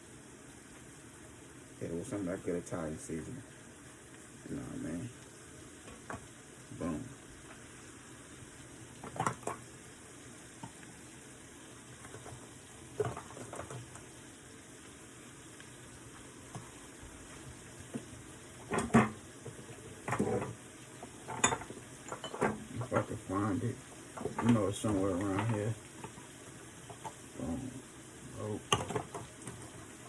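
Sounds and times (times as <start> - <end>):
mushrooms sizzling in a frying pan: 0.0 - 30.0
kitchen utensils clattering: 18.7 - 20.6, 21.2 - 23.3.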